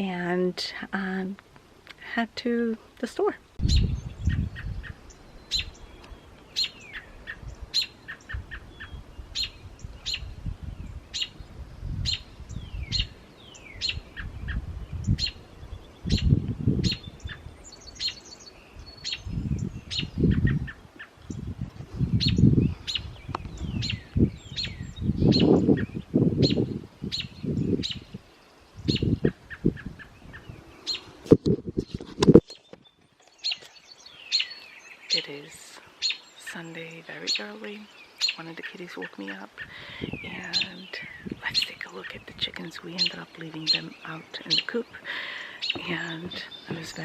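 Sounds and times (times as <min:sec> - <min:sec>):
small songbirds chirping: 0:00.0 - 0:47.0
low rumbling: 0:21.3 - 0:28.2.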